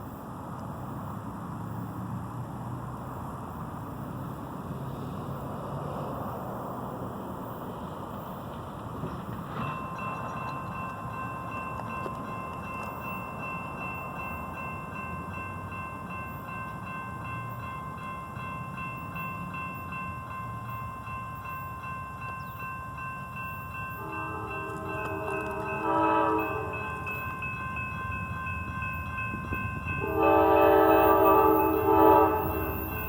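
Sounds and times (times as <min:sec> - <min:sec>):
railroad warning bell ringing: 0:09.2 - 0:33.0
train air horn: 0:24.0 - 0:27.0, 0:30.0 - 0:33.0.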